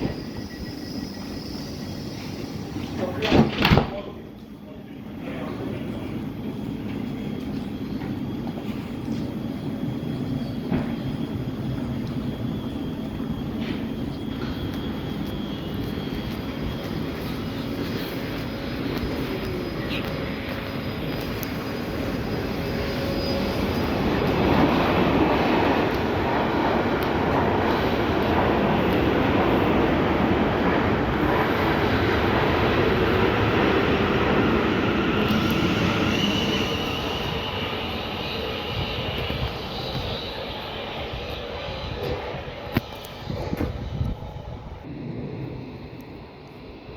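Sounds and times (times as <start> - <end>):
train rumble: 0.0 - 46.9.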